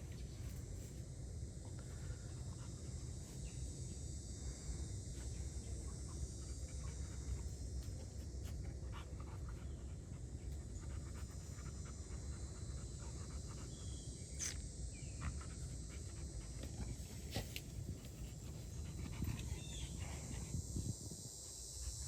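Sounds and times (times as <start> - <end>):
dog panting: 5.9 - 14.1, 15.1 - 20.6.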